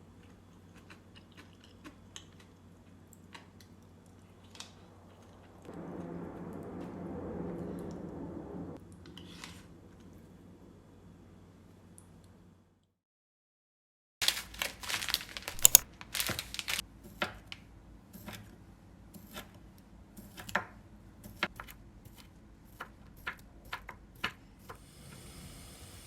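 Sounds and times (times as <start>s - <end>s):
packaging tearing and crinkling: 14.2s - 16.8s
steady hiss: 24.8s - 26.0s.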